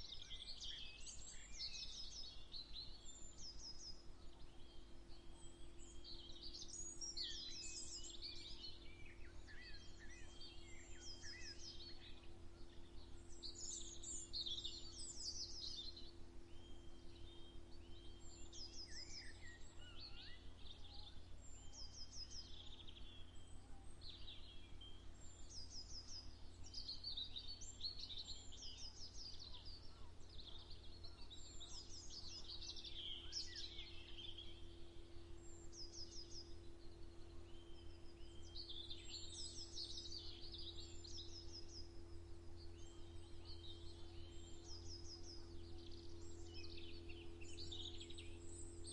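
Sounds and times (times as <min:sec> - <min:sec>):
small birds singing and chirping: 0:00.0 - 0:48.9
steady low hum: 0:32.6 - 0:48.9.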